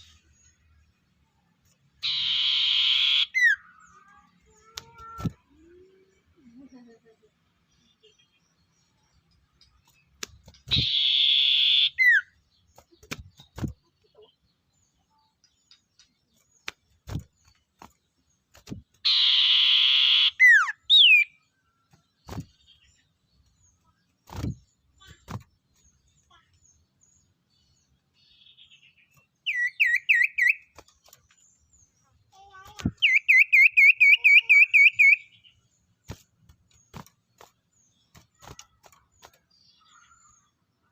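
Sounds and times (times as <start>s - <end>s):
owl screeching: 2.0s - 3.5s, 10.7s - 12.1s, 19.1s - 20.6s
owl chirping notes: 2.0s - 3.8s, 10.7s - 12.4s, 19.0s - 21.4s, 28.4s - 30.7s, 33.0s - 35.6s.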